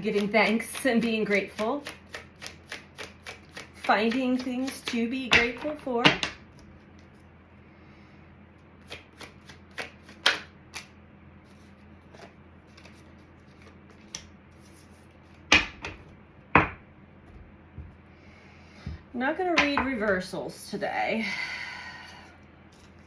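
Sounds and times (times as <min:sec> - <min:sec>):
cards being shuffled: 0:00.0 - 0:07.3, 0:08.8 - 0:16.1.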